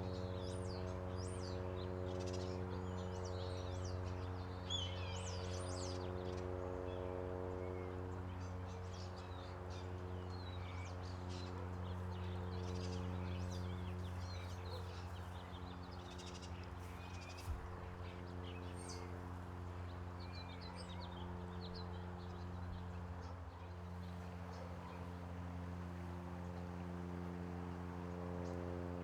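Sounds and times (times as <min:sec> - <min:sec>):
low mechanical hum: 0:00.0 - 0:29.0
small birds chirping: 0:08.8 - 0:28.9.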